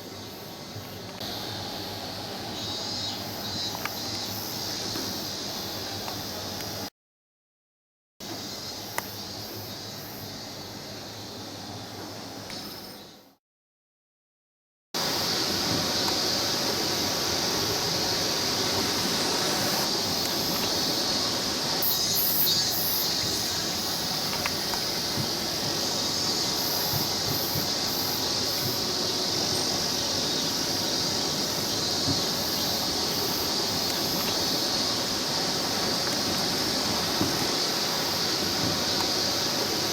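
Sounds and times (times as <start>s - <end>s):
mountain stream rushing: 15.0s - 21.9s.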